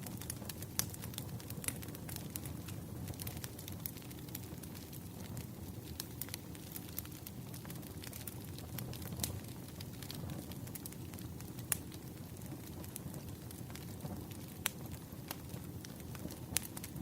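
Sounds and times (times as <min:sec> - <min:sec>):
fire crackling and popping: 0:00.0 - 0:17.0
fire flames rumbling: 0:00.0 - 0:17.0.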